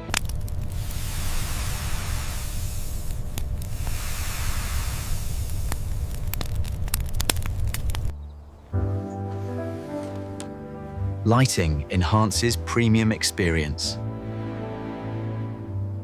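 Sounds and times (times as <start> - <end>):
low rumble: 0.0 - 8.1
steady hissing noise: 0.0 - 8.1
sharp crackles: 0.0 - 8.2.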